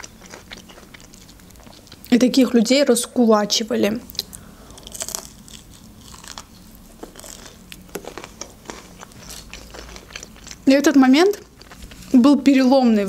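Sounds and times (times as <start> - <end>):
person chewing crispy chicken: 0.0 - 2.1, 4.1 - 10.7, 11.4 - 12.1.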